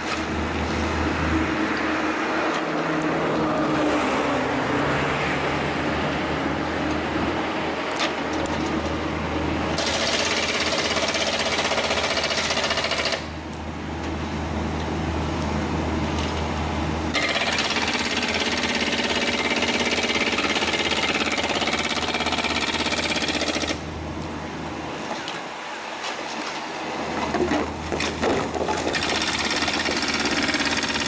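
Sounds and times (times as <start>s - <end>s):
steady engine hum: 0.0s - 9.8s, 13.2s - 26.0s
hydraulic breaker hammer pounding: 17.1s - 23.8s, 28.2s - 31.0s.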